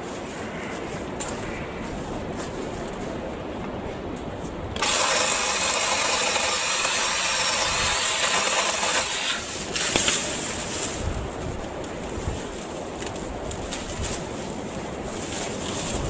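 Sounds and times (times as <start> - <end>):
cordless saw motor whine: 4.8 - 9.5.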